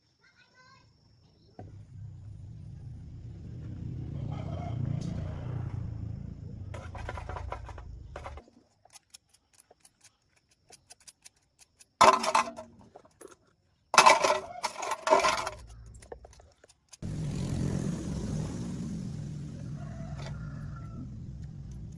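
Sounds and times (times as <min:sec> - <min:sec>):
low rumble: 0:01.7 - 0:08.2
metal objects clanking: 0:06.7 - 0:08.5, 0:12.0 - 0:13.4, 0:14.0 - 0:17.0.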